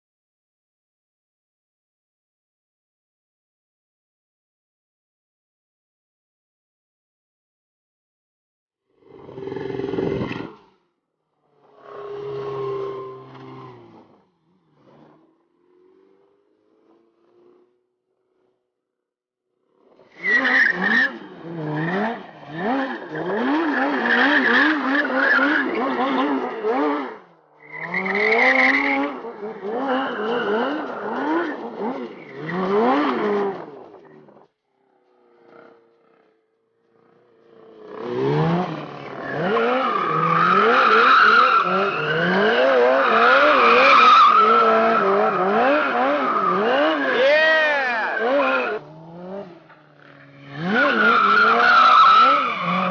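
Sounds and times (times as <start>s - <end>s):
motorcycle engine revving: 8.9s - 18.7s, 20.7s - 52.9s
tyre squeal: 27.6s - 34.2s, 38.9s - 48.8s, 50.0s - 52.9s.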